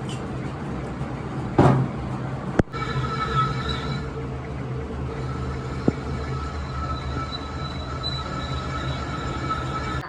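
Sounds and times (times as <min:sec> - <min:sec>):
truck engine rumbling: 0:00.0 - 0:10.0
high-pitched whine: 0:02.5 - 0:10.0.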